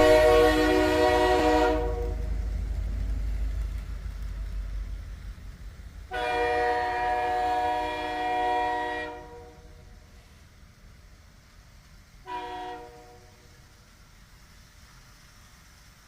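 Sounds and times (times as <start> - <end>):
train horn blast: 0.0 - 2.4, 6.1 - 10.0, 12.2 - 13.5
low rumble: 0.0 - 6.2.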